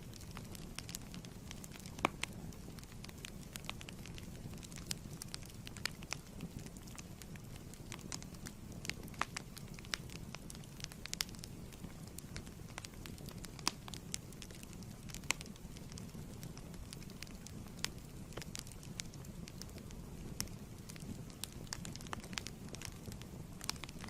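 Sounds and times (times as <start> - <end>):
fire crackles and pops: 0.0 - 24.0
wood fire rumbling: 0.0 - 24.0.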